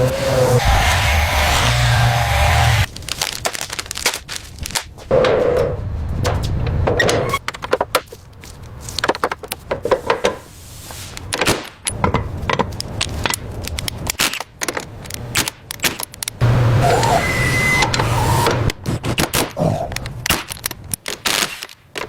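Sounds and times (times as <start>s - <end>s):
low motor hum: 0.0s - 2.9s.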